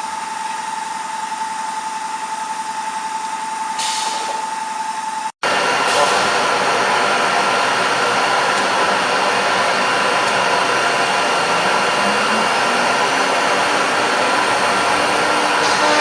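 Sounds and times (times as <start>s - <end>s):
router spindle whining: 5.5s - 16.0s.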